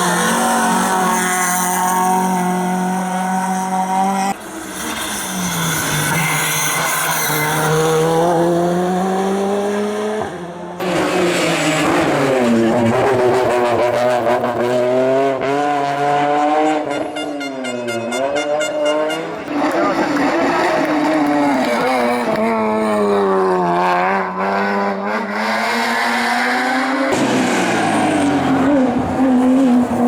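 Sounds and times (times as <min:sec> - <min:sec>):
racing car engines revving: 0:00.0 - 0:30.0
tyre squeal and skidding: 0:04.4 - 0:08.2.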